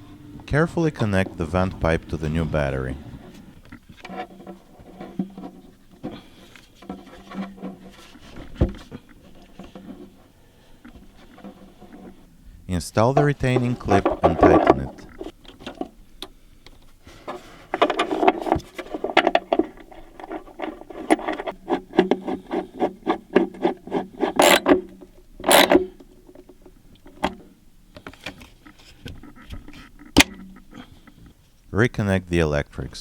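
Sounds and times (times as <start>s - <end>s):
ratchet clicking: 24.4s - 24.8s.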